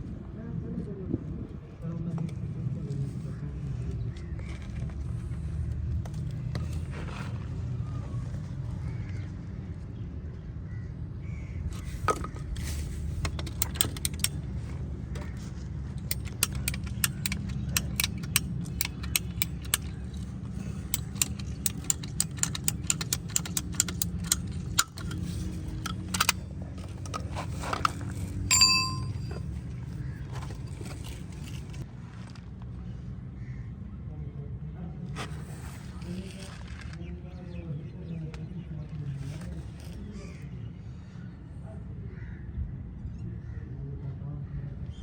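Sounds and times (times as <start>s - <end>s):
metallic clicks of hand tools: 13.2s - 14.4s, 16.0s - 29.4s
ringing metal ding: 28.5s - 29.5s.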